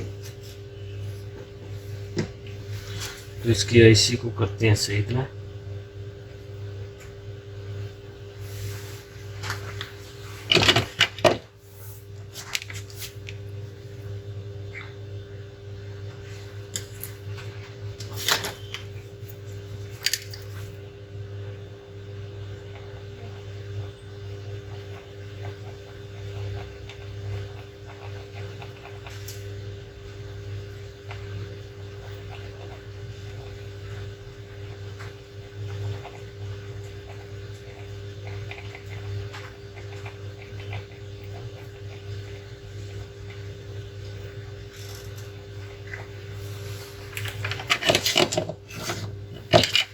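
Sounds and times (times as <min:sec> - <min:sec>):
electrical hum: 0:00.0 - 0:49.9.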